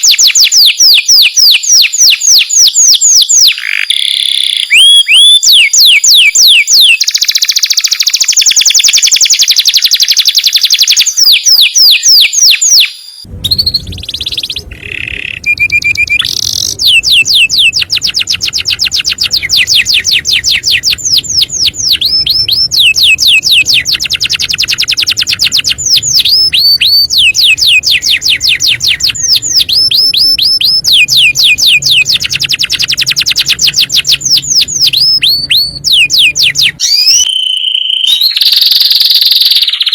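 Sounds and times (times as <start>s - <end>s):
canary singing trills: 0.0s - 39.9s
low hum: 13.2s - 36.9s.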